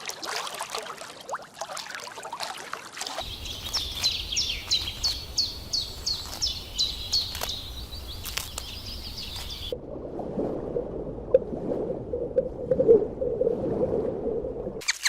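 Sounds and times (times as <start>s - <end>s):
bird calling sharp notes: 3.2s - 9.7s.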